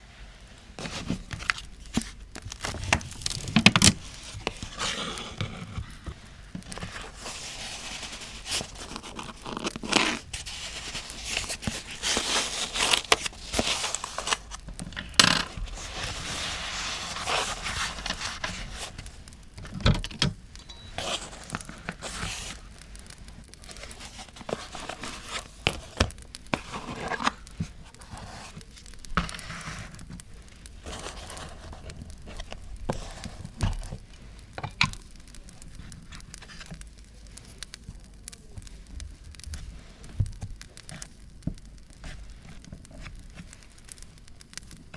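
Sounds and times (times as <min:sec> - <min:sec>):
paper tearing and crinkling: 0:00.8 - 0:14.7, 0:15.5 - 0:19.3, 0:20.9 - 0:34.0
campfire crackling: 0:22.6 - 0:24.5, 0:25.6 - 0:26.6, 0:34.0 - 0:44.9.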